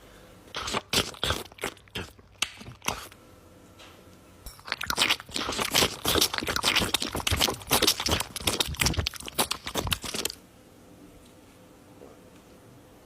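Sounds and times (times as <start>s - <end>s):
crackling and crunching: 4.6s - 10.4s.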